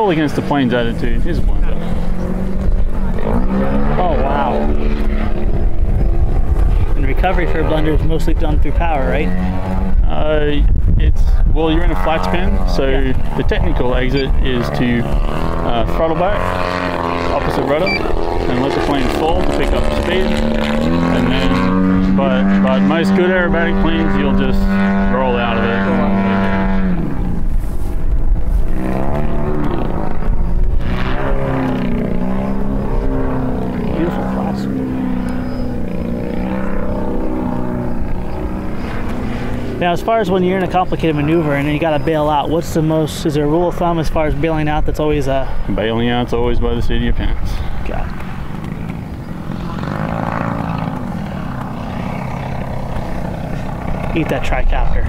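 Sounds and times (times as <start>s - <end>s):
model airplane engine revving: 11.8s - 28.0s, 28.6s - 42.9s, 48.1s - 54.6s.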